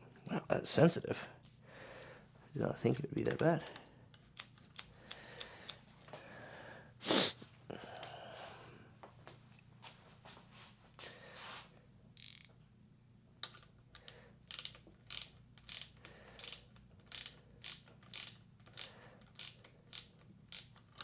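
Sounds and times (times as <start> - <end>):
hand ratchet clicking: 12.2 - 12.5, 13.4 - 21.0.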